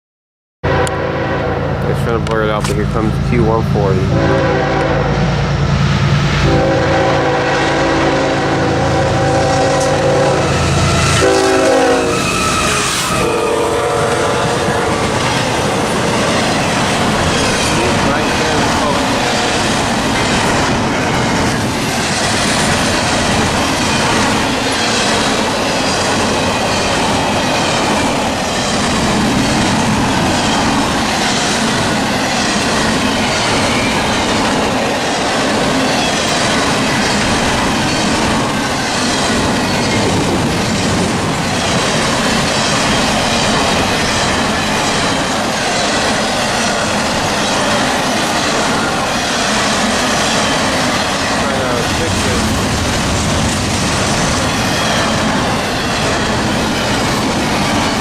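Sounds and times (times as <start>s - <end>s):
freight train rumbling: 0.6s - 58.0s
train wheels clacking over rail joints: 13.9s - 58.0s.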